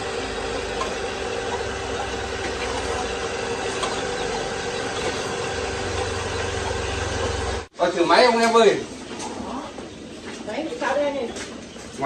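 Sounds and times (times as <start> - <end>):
small engine idling: 0.0 - 7.7.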